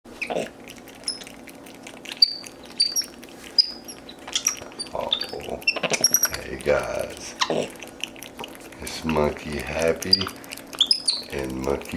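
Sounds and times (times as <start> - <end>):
monkeys chirping and squeaking: 0.2 - 1.4, 2.1 - 6.4, 10.0 - 11.5.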